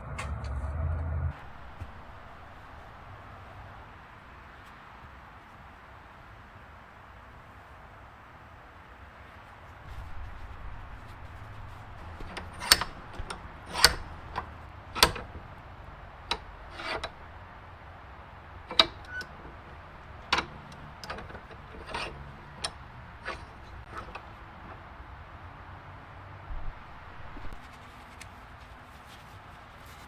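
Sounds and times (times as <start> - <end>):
tools clicking and knocking: 11.8 - 17.3, 18.7 - 24.9.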